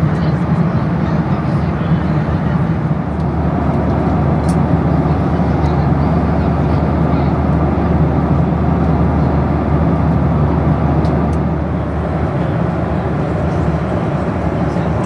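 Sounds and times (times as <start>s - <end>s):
airplane cabin engine and airflow rush: 0.0s - 15.0s
constant low hum: 11.6s - 15.0s.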